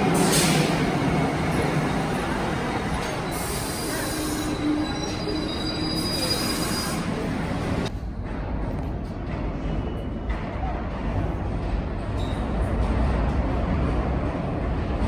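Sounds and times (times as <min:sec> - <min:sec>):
steel wheels squealing: 0:00.0 - 0:07.8, 0:12.2 - 0:12.6
subway train running noise: 0:00.0 - 0:15.0.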